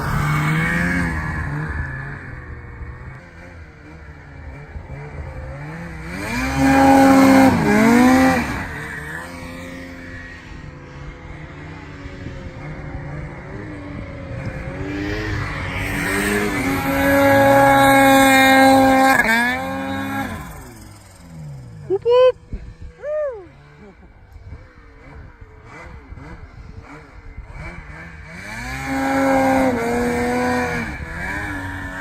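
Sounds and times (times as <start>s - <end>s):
snowmobile engine revving: 0.0s - 32.0s.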